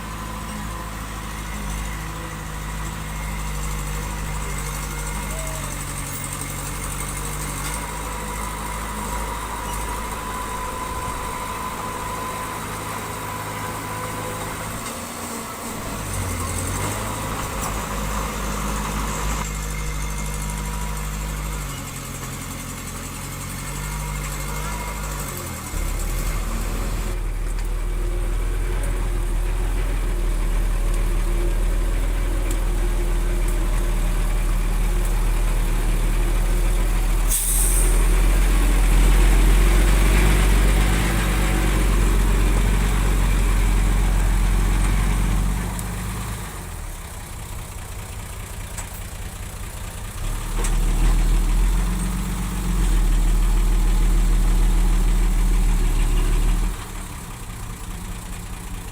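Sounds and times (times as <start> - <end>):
heavy diesel engine running: 0.0 - 58.9
short sharp hiss: 37.3 - 38.0.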